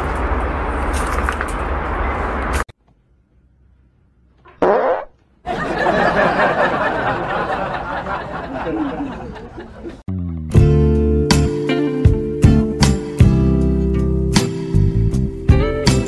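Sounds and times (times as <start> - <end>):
fart sound: 4.4 - 5.2
person laughing: 7.5 - 10.0.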